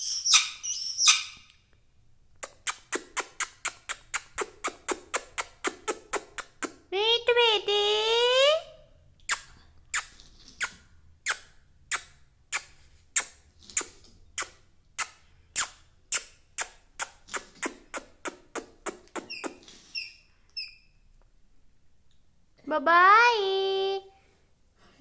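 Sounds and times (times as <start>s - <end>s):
parrot chirps: 0.0s - 1.6s, 2.4s - 6.8s, 9.2s - 21.0s.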